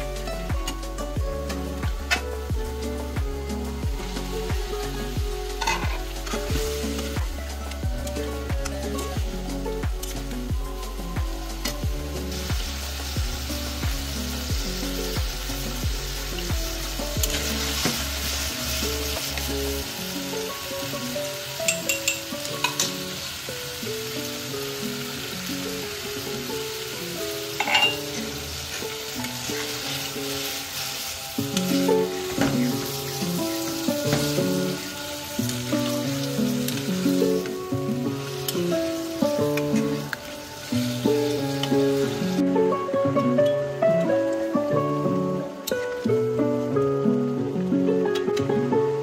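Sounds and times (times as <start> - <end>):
food sizzling in a metal pan: 0.0 - 49.0
instrumental background music: 0.0 - 49.0
metal spatula stirring: 5.6 - 7.2, 21.7 - 22.9, 27.5 - 31.7
spatula clinking against pan: 27.6 - 28.1.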